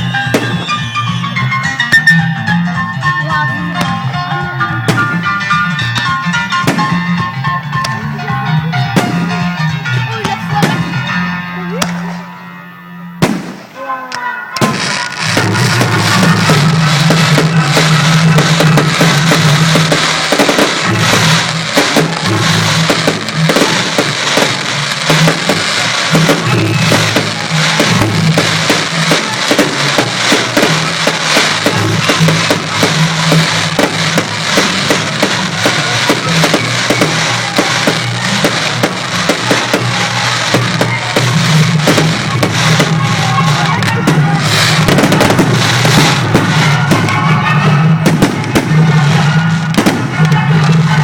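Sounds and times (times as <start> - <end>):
fireworks bursting and crackling: 0.0 - 2.4, 4.8 - 8.0, 8.8 - 11.2, 13.2 - 51.0
music with low bass line: 14.6 - 51.0.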